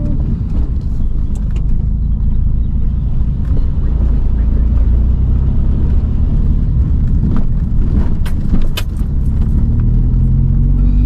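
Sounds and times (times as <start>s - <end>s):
car engine and road rumble: 0.0s - 11.0s
sharp clicks or rattles: 7.2s - 9.6s.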